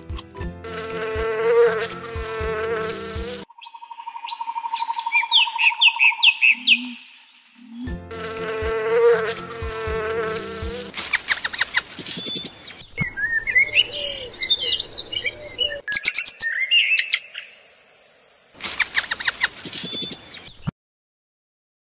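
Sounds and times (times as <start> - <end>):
insect buzzing: 0.6 - 3.5, 7.6 - 12.8, 17.3 - 20.4
rapid clicks and high chirps: 9.6 - 12.8, 18.7 - 20.5.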